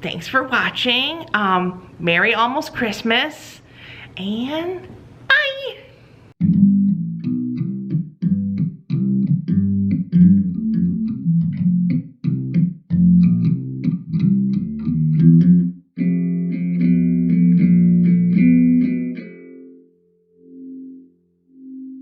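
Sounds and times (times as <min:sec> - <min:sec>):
electric bass guitar riff: 0:06.4 - 0:22.0.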